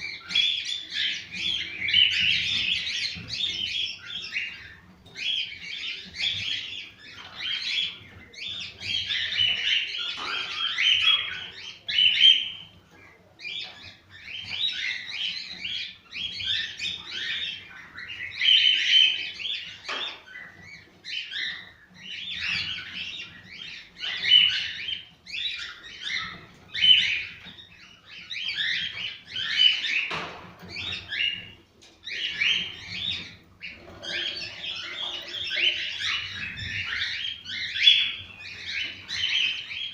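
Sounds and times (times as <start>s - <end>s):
cockatiels chirping and whistling: 0.0s - 39.9s.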